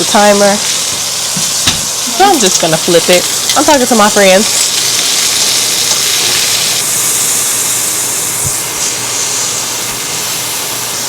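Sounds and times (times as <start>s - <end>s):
steak sizzling in hot oil: 0.0s - 11.0s.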